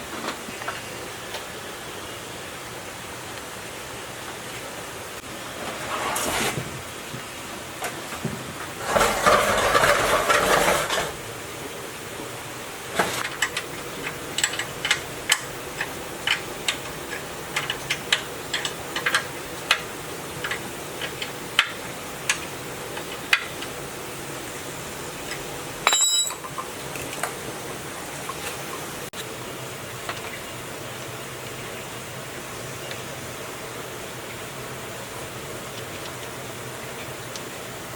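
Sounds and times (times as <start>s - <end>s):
small hard objects clinking: 25.8s - 26.5s.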